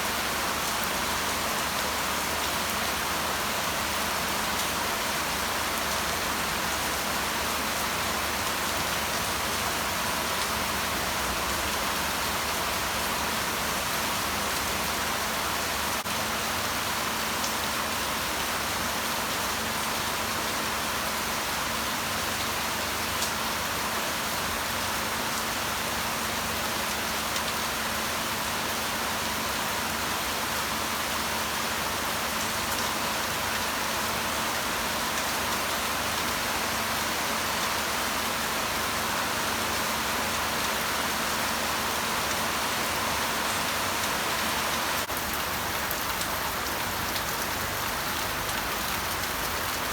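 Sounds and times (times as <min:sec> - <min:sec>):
steady rain falling: 0:00.0 - 0:49.9
ticks of raindrops: 0:42.2 - 0:49.9.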